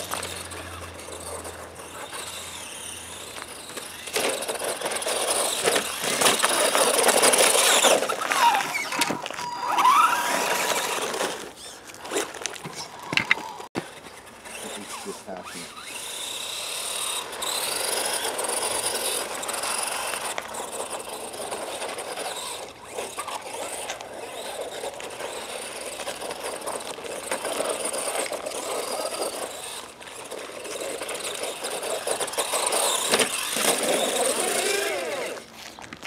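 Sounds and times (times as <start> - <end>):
electric motor whine: 0.0 - 35.8
tyre and drivetrain noise: 0.0 - 36.0.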